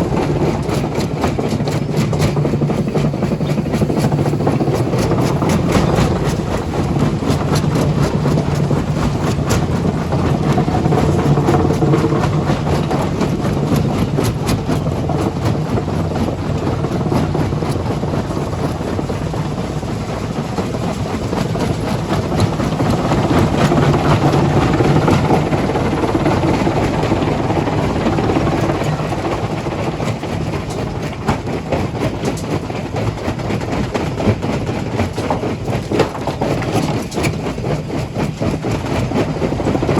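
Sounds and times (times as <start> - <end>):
heavy diesel machinery droning: 0.0 - 31.6
rock knocking and clattering: 2.0 - 18.1.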